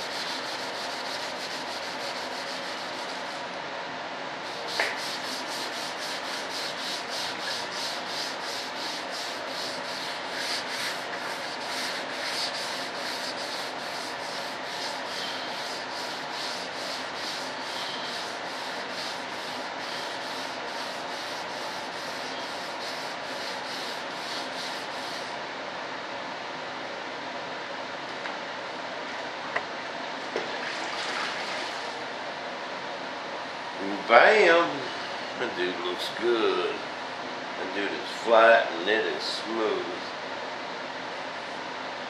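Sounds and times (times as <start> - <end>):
sandpaper rubbing back and forth: 0.0 - 3.5, 4.5 - 25.4.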